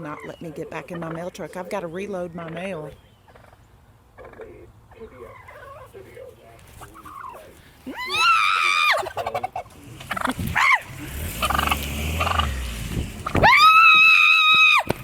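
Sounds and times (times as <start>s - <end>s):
turkey gobbling: 0.0s - 1.8s, 2.4s - 12.6s.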